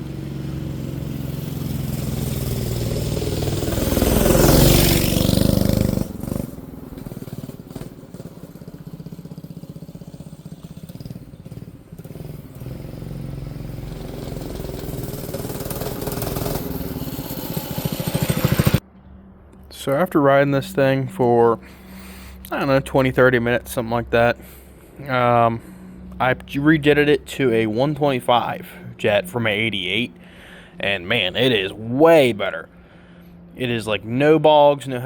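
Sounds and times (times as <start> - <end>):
mini bike engine passing: 0.0 - 18.9.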